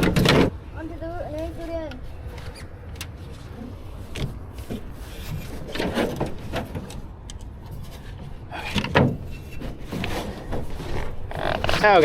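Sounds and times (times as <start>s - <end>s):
canoe knocks and scrapes: 4.2s - 7.0s, 7.7s - 12.0s.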